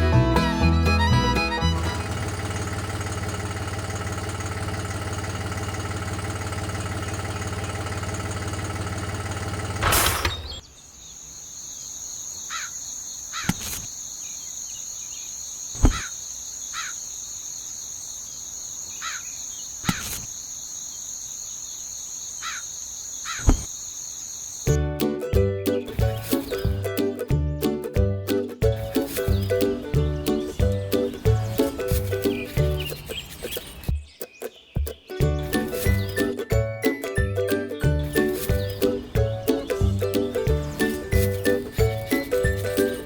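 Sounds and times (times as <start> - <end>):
short falling bird calls: 9.8 - 24.7
high insect drone: 11.0 - 24.7.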